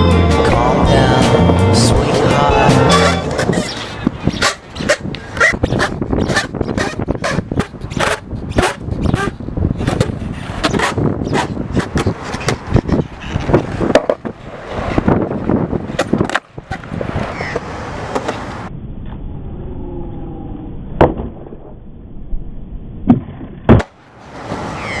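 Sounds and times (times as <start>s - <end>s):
skateboard rolling on hard ground: 2.6s - 18.7s
skateboard clacks: 2.9s - 15.1s, 15.8s - 18.6s.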